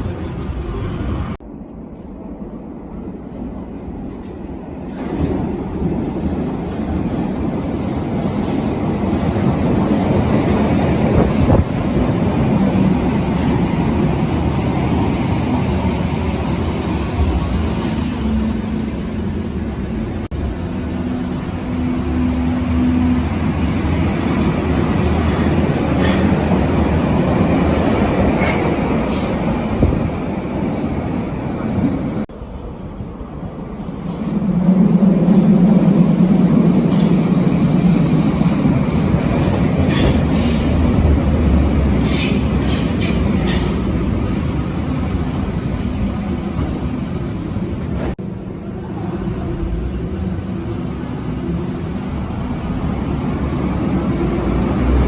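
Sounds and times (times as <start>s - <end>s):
train wheels rumbling: 0.0s - 55.0s
wheels screeching on rail: 32.4s - 45.8s, 51.1s - 55.0s.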